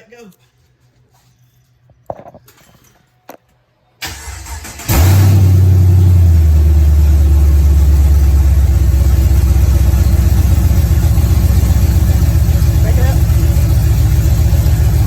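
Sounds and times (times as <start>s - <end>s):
car engine idling loudly: 4.9s - 15.0s.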